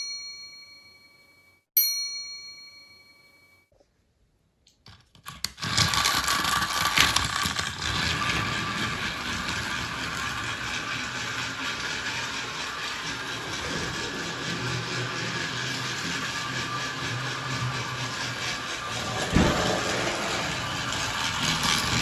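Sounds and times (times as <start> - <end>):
toy train motor and gears running: 4.9 - 22.0.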